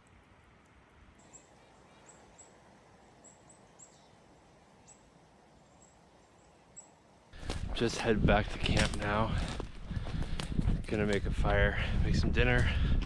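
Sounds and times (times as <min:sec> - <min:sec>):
small bird high chirps: 0:01.2 - 0:05.1.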